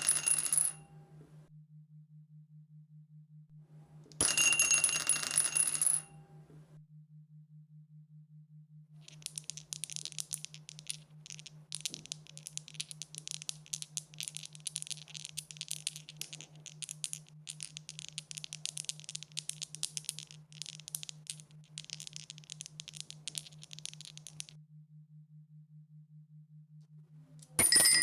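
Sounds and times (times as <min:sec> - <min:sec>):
dice rattling: 0:09.0 - 0:24.5.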